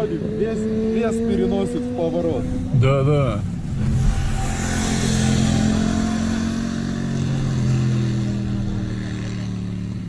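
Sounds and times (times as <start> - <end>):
motorcycle engine humming: 0.0 - 10.0
wind and road noise: 0.0 - 10.0.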